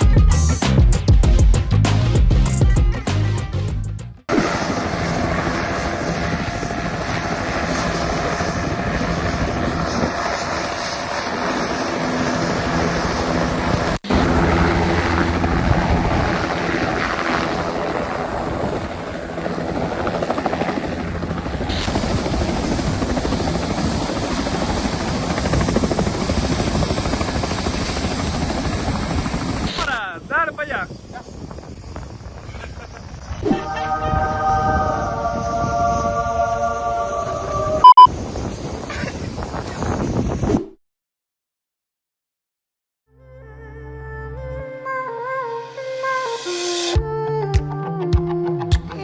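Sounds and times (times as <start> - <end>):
helicopter rotor and engine: 4.3 - 33.4.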